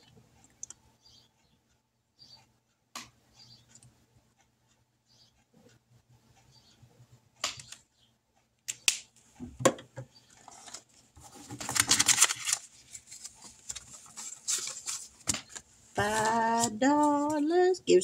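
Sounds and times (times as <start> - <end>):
sharp clicks and taps: 2.9 - 4.0
paper bills rustling: 10.5 - 17.4.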